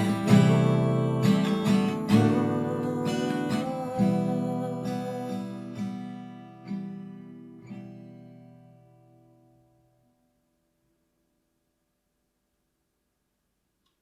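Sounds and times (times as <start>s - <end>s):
acoustic guitar strumming: 0.0s - 9.5s.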